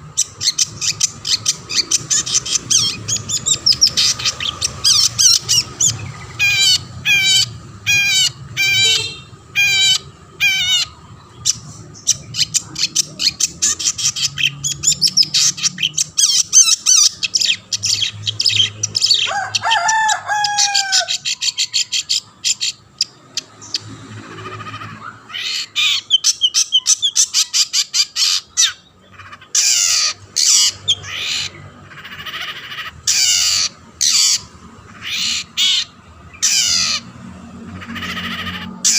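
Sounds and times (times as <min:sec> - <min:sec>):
shrike singing and chattering: 0:00.0 - 0:38.9.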